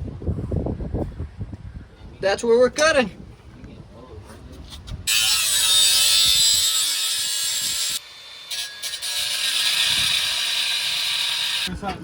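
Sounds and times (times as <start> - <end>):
reciprocating saw cutting pipe: 5.1 - 11.7.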